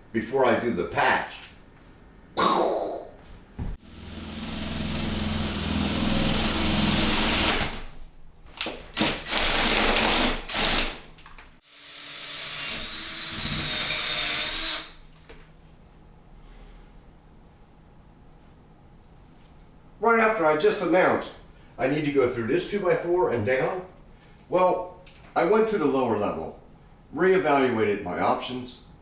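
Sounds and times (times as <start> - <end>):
power drill running: 3.8 - 7.8, 8.9 - 11.0, 11.6 - 15.0.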